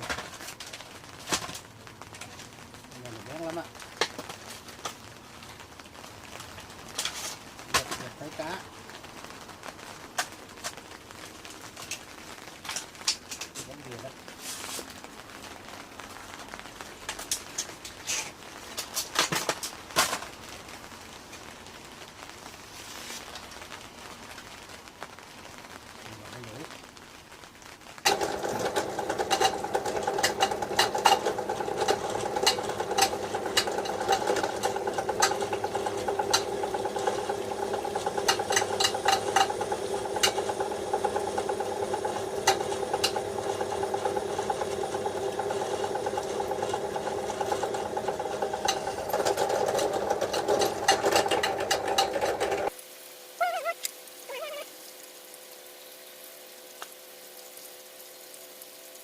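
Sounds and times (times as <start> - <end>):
angle grinder motor humming: 28.1 - 52.7.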